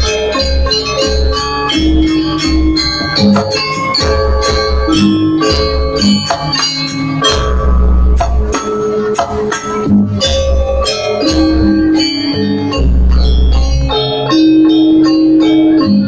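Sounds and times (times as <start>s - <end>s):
drums beating: 0.0s - 15.1s
jingling percussion: 0.0s - 16.0s
metallophones ringing: 0.0s - 16.0s
low bass pulses: 7.2s - 14.5s.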